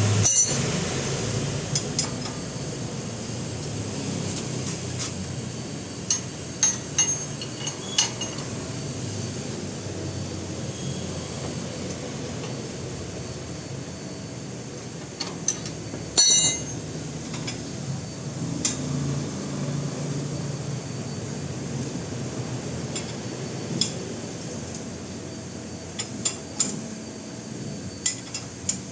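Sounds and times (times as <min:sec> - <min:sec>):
steady background hum: 0:00.0 - 0:28.9
hand tools clinking on metal: 0:00.2 - 0:00.8, 0:06.1 - 0:08.6, 0:15.2 - 0:17.6
ringing metal clatter: 0:00.2 - 0:00.8, 0:06.1 - 0:08.5, 0:15.5 - 0:17.6.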